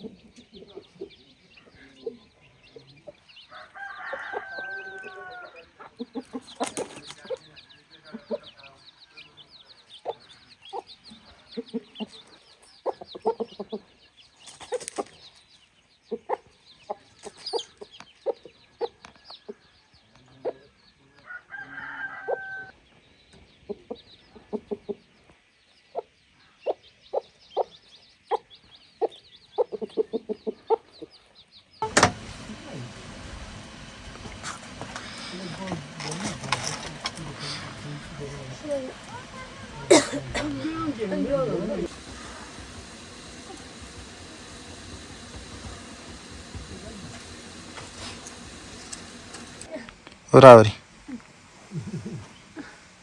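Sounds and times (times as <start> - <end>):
chickens clucking: 0.0 - 53.0
rooster crowing: 3.4 - 5.9, 21.2 - 22.8, 31.8 - 49.7.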